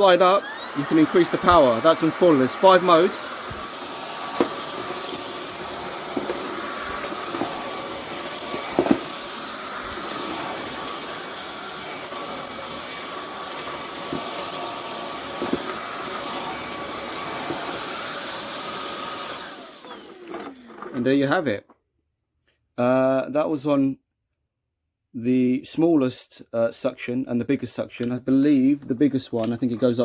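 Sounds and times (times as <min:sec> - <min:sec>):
vacuum cleaner running: 0:00.0 - 0:21.5.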